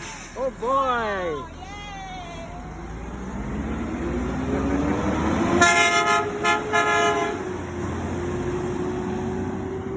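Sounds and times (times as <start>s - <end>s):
truck engine revving: 2.5s - 9.9s
truck horn tooting: 5.5s - 7.6s.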